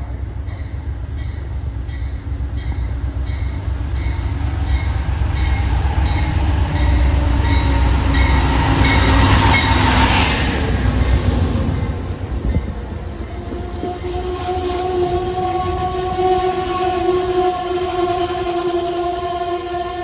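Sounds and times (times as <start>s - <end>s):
train diesel rumble: 0.0s - 20.0s
train bell ringing: 0.4s - 10.0s.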